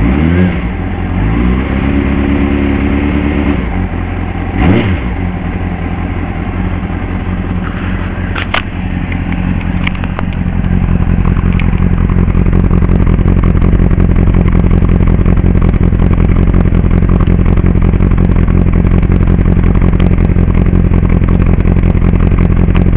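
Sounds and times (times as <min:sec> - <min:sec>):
motorcycle engine idling: 0:00.0 - 0:22.9
sharp clicks: 0:08.3 - 0:10.8, 0:11.4 - 0:12.0.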